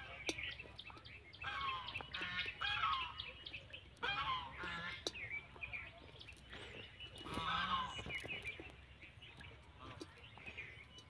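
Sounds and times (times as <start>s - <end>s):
birds honking: 1.4s - 3.4s, 4.0s - 5.1s, 6.6s - 8.3s.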